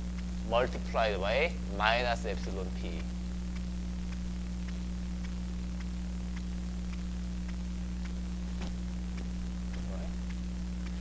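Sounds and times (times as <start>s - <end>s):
electrical hum with hiss: 0.0s - 11.0s
faint light ticks: 2.5s - 8.3s, 9.1s - 11.0s.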